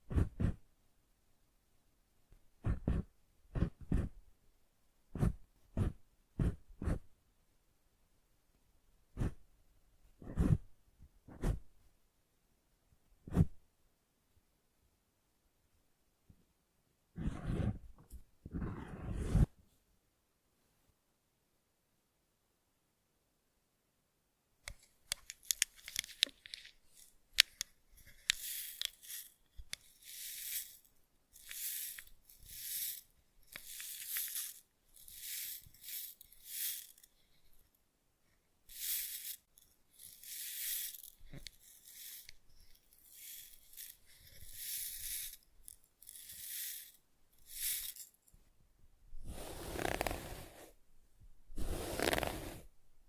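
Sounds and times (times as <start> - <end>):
crackling clicks and taps: 24.6 - 29.9
soft hissing swishes: 49.2 - 50.8, 51.6 - 52.6.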